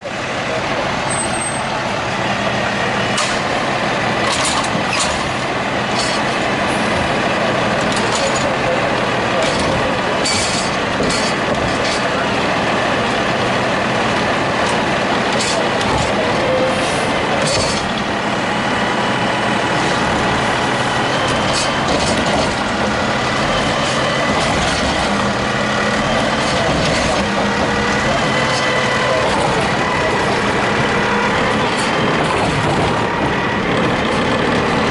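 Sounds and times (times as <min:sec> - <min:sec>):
garbage truck engine running: 0:00.0 - 0:34.9.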